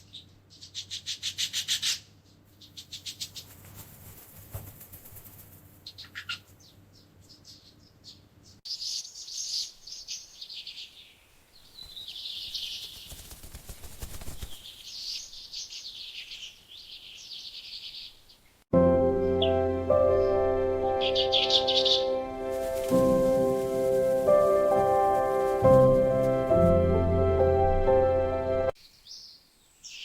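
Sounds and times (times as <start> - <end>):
canaries chirping: 21.0 - 22.2.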